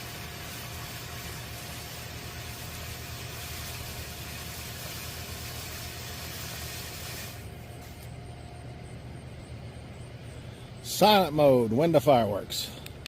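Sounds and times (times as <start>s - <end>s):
firework fountain hissing: 0.0s - 8.1s.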